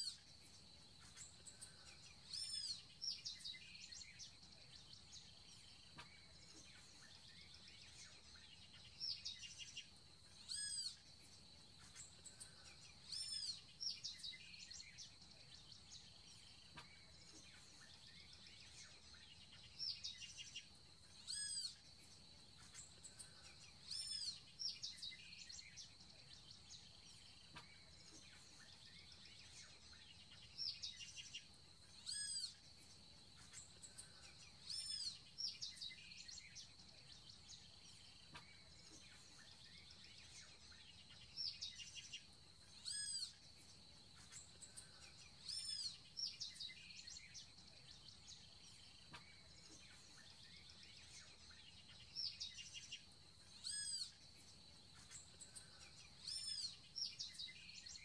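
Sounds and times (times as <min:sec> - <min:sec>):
high whistled bird calls: 0:10.4 - 0:11.1, 0:13.0 - 0:21.8, 0:23.8 - 0:32.6, 0:34.6 - 0:42.2, 0:42.8 - 0:43.4, 0:45.4 - 0:54.2.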